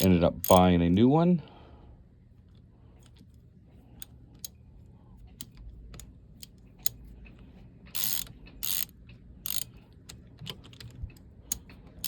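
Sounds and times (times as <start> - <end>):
ratchet wrench clicking: 0.0 - 0.6, 7.9 - 9.8
tools tapping on metal: 0.0 - 0.6.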